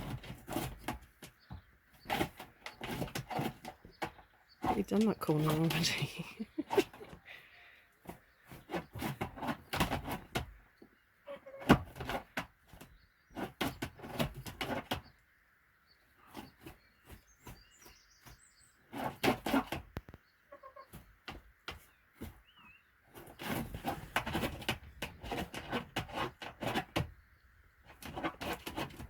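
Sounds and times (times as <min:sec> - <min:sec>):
hen scratching through bedding: 0:00.0 - 0:10.6, 0:11.3 - 0:15.2, 0:16.1 - 0:27.2, 0:27.8 - 0:29.0
faint high bird chirps: 0:20.1 - 0:21.0, 0:21.8 - 0:23.0.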